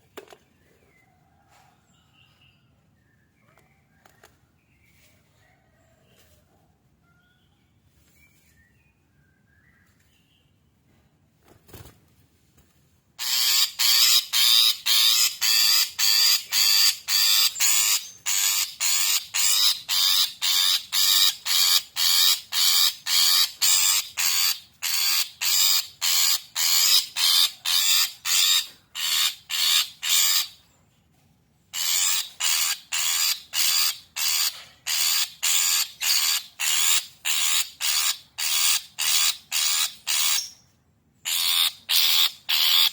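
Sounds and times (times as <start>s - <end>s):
faint bird chirps: 0.6s - 10.8s
bird harsh rasping calls: 13.2s - 30.6s, 31.8s - 40.6s, 41.2s - 42.9s.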